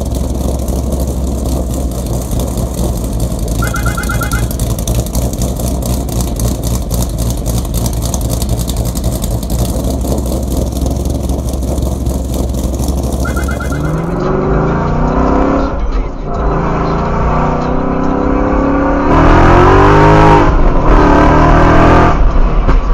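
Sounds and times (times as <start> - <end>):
car engine idling choppily: 0.0 - 13.3
car engine revving: 0.0 - 22.4.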